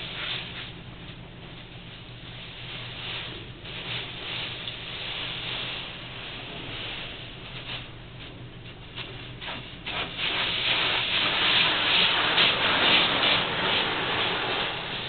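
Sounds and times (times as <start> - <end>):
car wash hissing rush: 0.0 - 0.8, 8.9 - 15.0.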